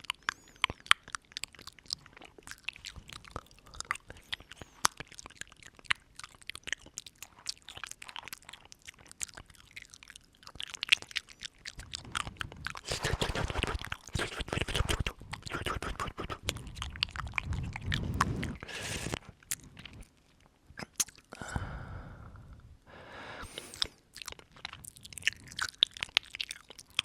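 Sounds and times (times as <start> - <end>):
wet mouth clicks and smacks: 0.0 - 21.4, 23.4 - 27.0.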